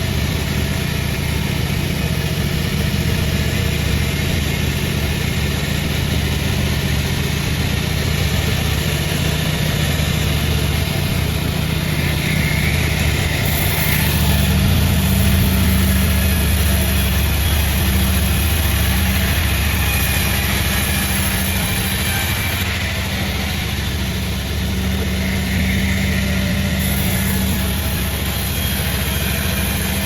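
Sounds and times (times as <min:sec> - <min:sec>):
sawmill machinery engine drone: 0:00.0 - 0:30.0.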